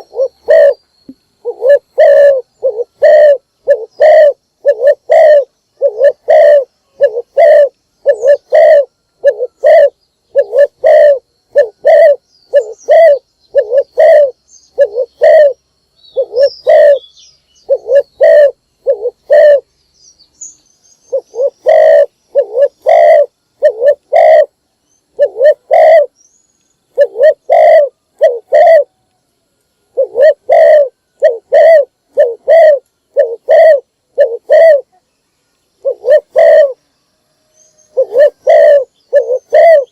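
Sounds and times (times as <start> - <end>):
dove cooing: 0.0 - 0.8, 1.4 - 19.7, 21.1 - 26.2, 26.9 - 29.0, 29.9 - 35.0, 35.8 - 36.8, 37.8 - 39.9.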